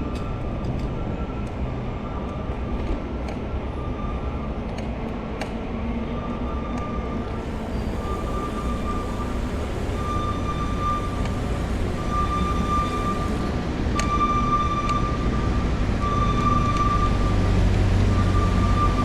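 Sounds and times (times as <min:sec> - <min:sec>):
city traffic rumble: 0:00.0 - 0:19.0
steady high-pitched tone: 0:07.2 - 0:17.5.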